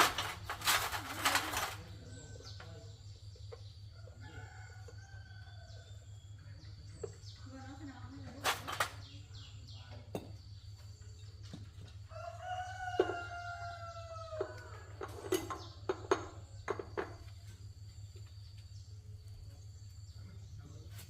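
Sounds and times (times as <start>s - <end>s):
rooster crowing: 12.1s - 15.0s.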